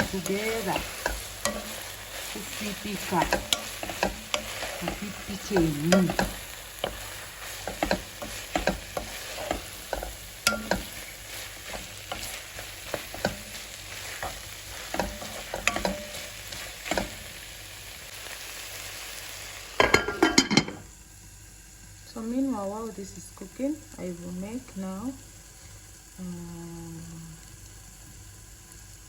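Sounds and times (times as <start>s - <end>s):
utensil scraping and clicking on pot: 0.0s - 17.5s
vegetables sizzling in a pot: 0.0s - 29.0s.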